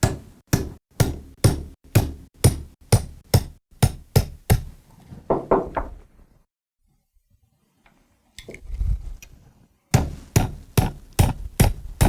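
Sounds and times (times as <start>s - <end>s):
hammer striking steel punch: 0.0s - 4.7s.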